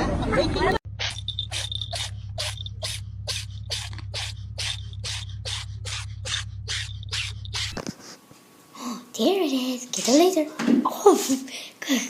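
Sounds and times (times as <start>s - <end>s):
steady low hum: 0.8s - 9.2s
rhythmic swishing or scraping: 1.0s - 8.2s.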